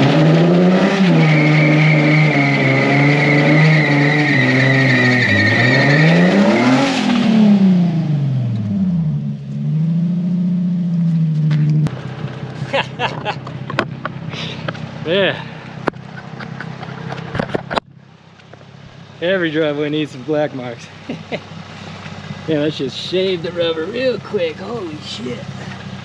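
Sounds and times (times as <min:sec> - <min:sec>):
tires squealing: 0:00.0 - 0:08.1, 0:18.7 - 0:26.0
car engine at high revs: 0:00.0 - 0:26.0.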